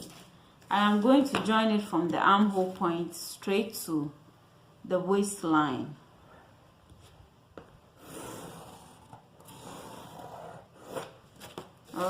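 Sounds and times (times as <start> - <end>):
marking tool scratching paper: 8.0 - 11.2.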